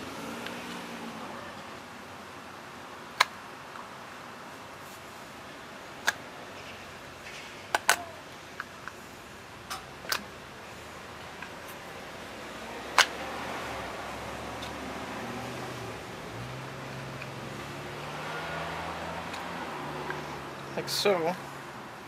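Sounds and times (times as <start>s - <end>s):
steady low hiss: 0.0s - 22.0s
plastic parts clicking: 9.7s - 10.3s.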